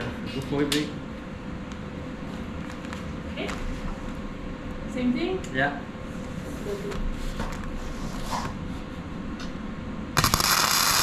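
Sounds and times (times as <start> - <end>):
welding arc crackling: 10.2 - 11.0.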